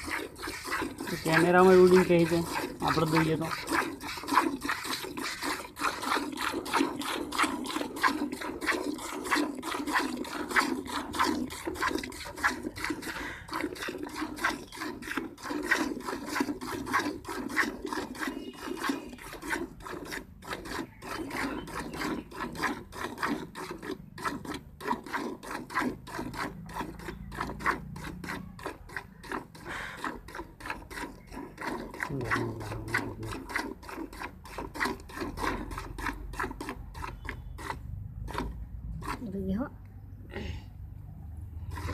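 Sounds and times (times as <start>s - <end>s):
milk squirting into a pail: 0.0s - 39.4s, 41.4s - 41.9s.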